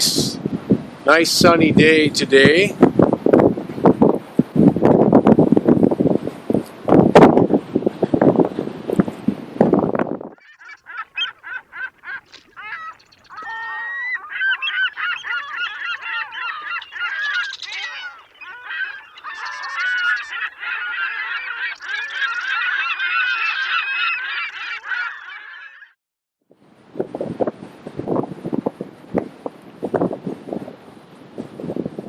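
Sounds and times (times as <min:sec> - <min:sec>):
geese honking: 0:10.4 - 0:25.8.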